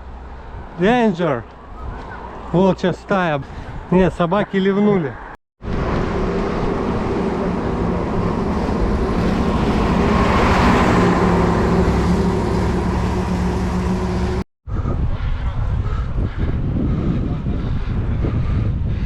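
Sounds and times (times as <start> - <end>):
wind rumble on microphone: 1.4 - 2.5, 3.4 - 4.2, 5.6 - 19.0
vehicle engine passing: 5.6 - 14.4.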